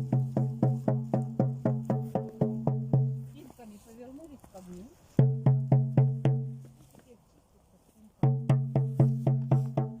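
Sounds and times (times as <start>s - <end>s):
drum beaten steadily: 0.0s - 3.5s, 5.2s - 6.6s, 8.2s - 10.0s.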